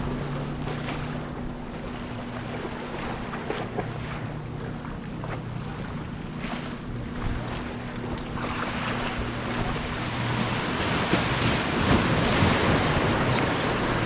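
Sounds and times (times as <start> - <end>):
surf: 0.0 - 14.0
wind buffeting microphone: 5.4 - 14.0.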